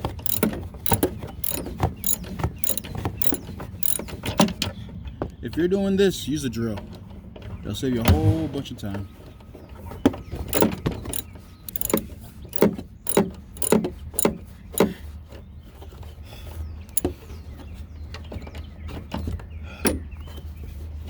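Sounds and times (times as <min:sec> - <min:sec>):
tool knocking on metal bolts: 0:00.2 - 0:04.0, 0:10.5 - 0:12.0, 0:12.6 - 0:14.9.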